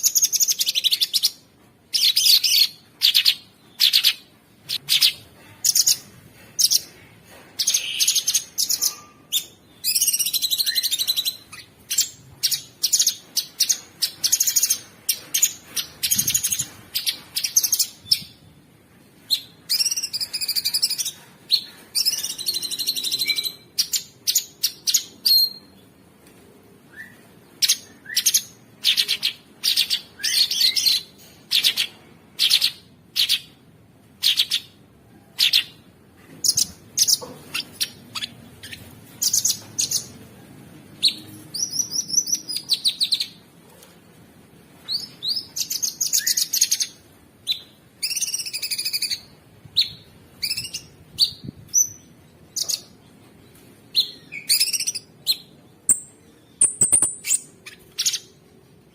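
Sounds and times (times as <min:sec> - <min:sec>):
songbird chirps and trills: 0:44.8 - 0:58.9.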